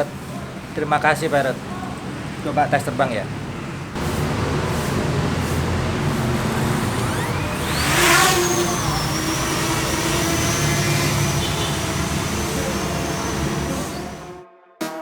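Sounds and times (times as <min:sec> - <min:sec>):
drone propellers whining: 0:04.0 - 0:14.4
rushing noise: 0:04.0 - 0:14.4.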